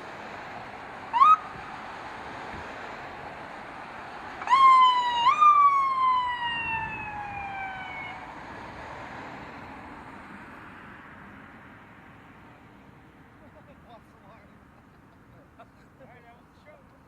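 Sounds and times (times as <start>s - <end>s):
outdoor background noise: 0.0s - 17.0s
emergency vehicle siren: 0.7s - 2.4s, 4.3s - 9.0s.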